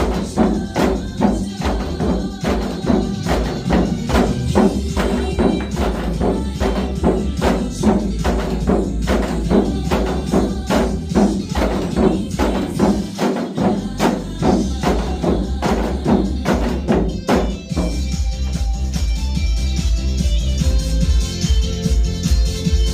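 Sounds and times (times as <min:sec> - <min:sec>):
hourglass drums beaten: 0:00.0 - 0:18.2
disco backing track with bass: 0:00.0 - 0:22.9.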